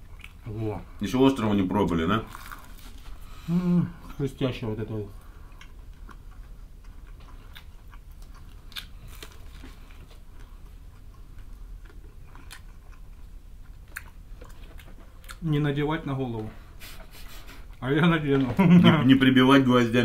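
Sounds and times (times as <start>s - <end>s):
steady low hum: 0.0s - 20.0s
crunching fried chicken: 1.8s - 3.0s, 5.5s - 15.6s.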